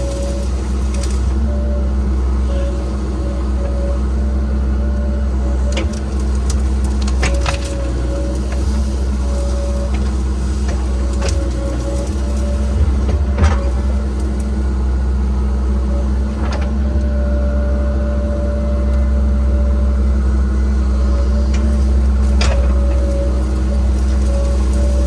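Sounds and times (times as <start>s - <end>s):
excavator diesel engine running: 0.0s - 25.0s
wood snapping: 5.6s - 8.6s.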